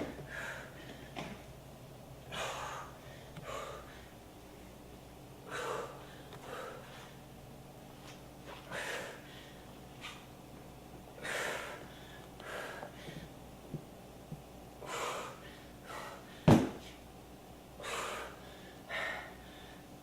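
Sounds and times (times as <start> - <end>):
person breathing hard: 0.0 - 1.3, 2.3 - 4.2, 5.4 - 7.2, 8.6 - 9.7, 11.2 - 13.4, 14.8 - 16.6, 17.8 - 19.9.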